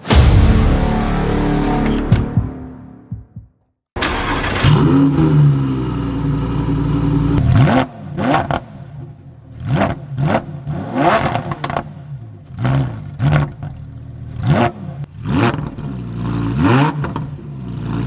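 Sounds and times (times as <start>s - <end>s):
sports car engine revving: 4.0s - 18.0s.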